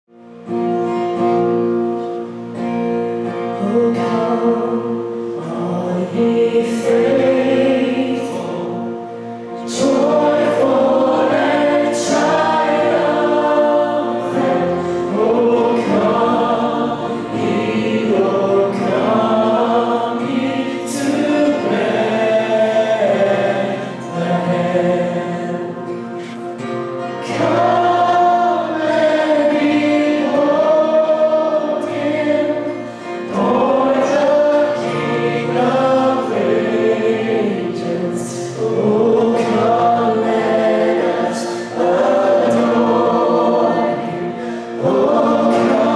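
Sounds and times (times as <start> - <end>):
sustained held chords: 1.4 - 45.9
choir singing: 2.5 - 45.9.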